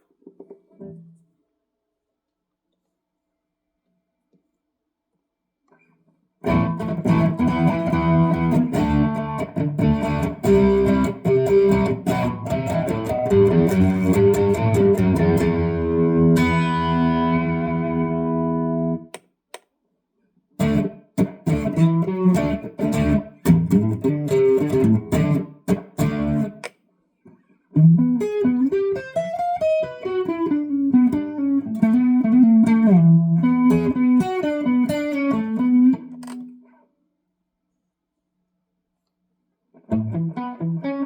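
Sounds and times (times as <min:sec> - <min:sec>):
electric guitar chords: 0:06.4 - 0:19.1, 0:20.6 - 0:26.6, 0:27.8 - 0:36.2, 0:39.8 - 0:41.0
electric guitar melody: 0:06.4 - 0:19.1, 0:20.6 - 0:26.6, 0:27.8 - 0:36.5, 0:39.8 - 0:41.0.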